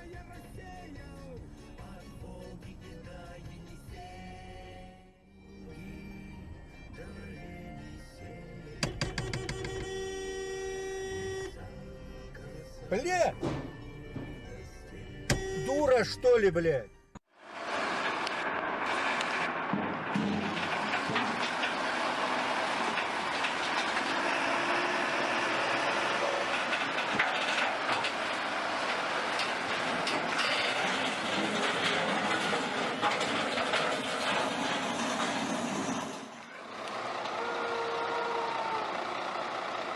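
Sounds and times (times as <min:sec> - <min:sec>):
knocks: 0:08.8 - 0:10.0, 0:13.4 - 0:14.5
vehicle and road noise: 0:17.3 - 0:39.9.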